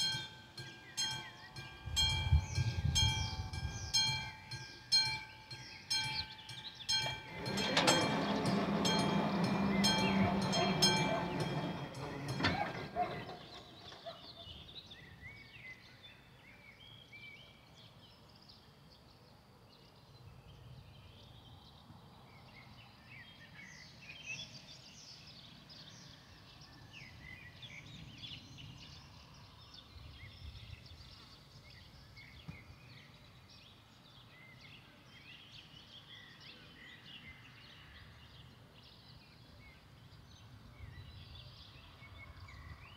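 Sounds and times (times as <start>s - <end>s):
crossing warning bell ringing: 0.0s - 13.9s
passenger train passing: 0.0s - 14.0s
birdsong: 0.0s - 42.9s.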